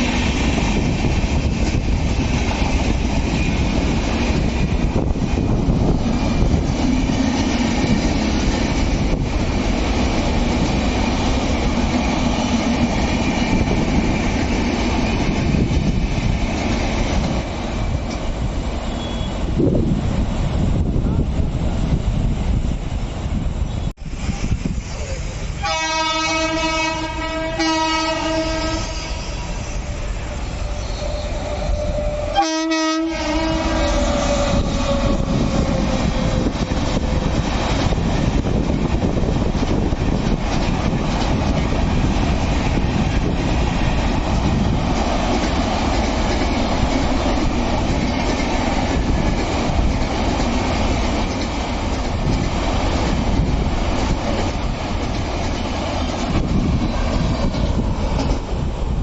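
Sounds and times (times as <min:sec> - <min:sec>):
clickety-clack over rail joints: 0:00.0 - 0:22.9, 0:32.4 - 0:59.0
train wheels rumbling: 0:00.0 - 0:59.0
train horn blasts: 0:18.9 - 0:19.4, 0:25.6 - 0:36.2.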